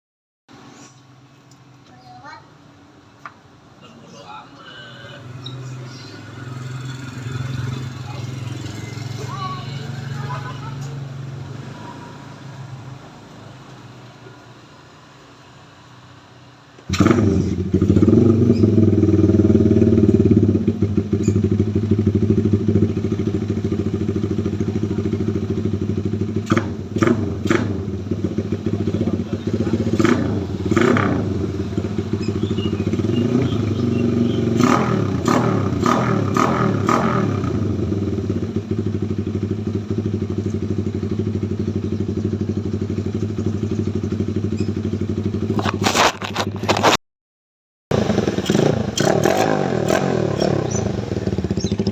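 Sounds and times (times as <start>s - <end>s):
motorcycle engine idling: 4.7s - 14.5s, 16.2s - 45.8s, 47.9s - 51.9s
brief sharp noises: 45.5s - 47.0s.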